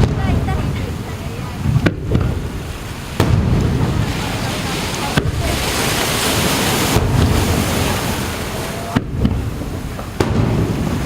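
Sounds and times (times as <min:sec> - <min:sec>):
firework shells bursting: 0:00.0 - 0:11.0
surf washing on beach: 0:00.0 - 0:11.0
wind on microphone: 0:00.0 - 0:11.0.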